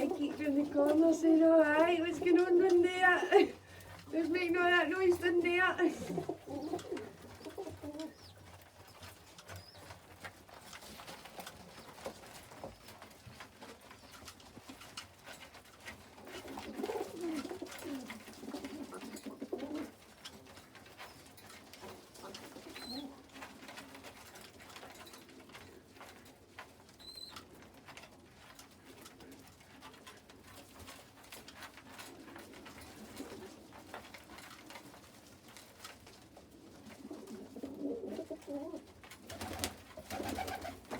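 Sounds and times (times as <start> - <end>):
pigeons cooing: 0.0 - 8.4, 16.2 - 20.0, 22.1 - 23.3, 32.0 - 33.9, 36.5 - 40.9.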